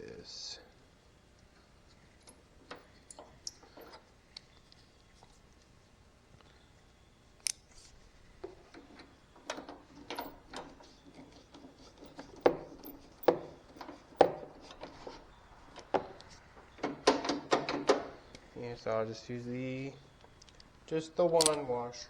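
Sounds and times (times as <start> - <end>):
small metal parts clinking: 8.5 - 18.3.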